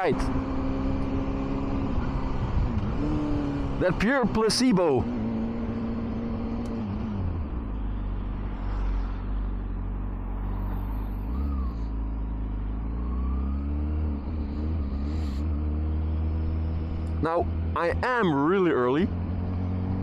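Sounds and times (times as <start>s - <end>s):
road noise: 0.0s - 20.0s
motorcycle engine running: 9.4s - 20.0s.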